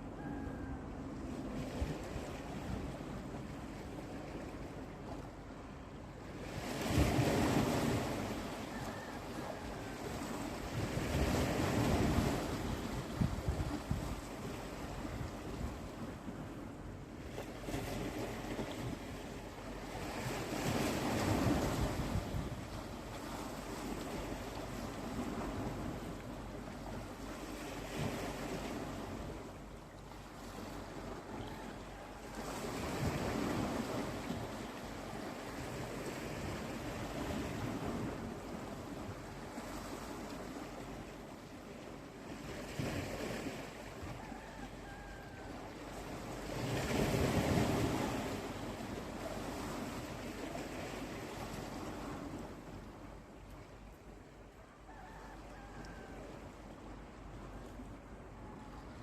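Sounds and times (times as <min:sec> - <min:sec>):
wind buffeting microphone: 0:10.1 - 0:16.6, 0:20.0 - 0:26.2.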